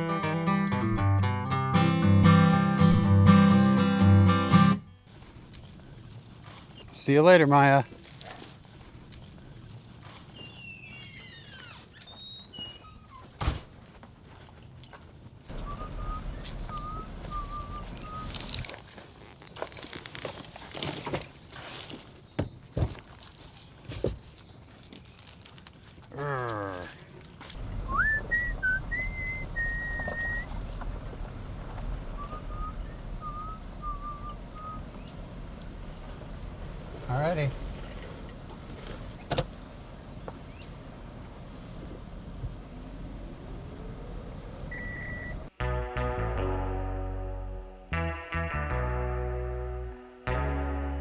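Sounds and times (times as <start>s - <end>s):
songbird whistling: 15.5s - 18.5s, 27.9s - 30.6s, 32.2s - 35.2s, 44.7s - 45.4s
steady low rumble: 27.6s - 45.5s.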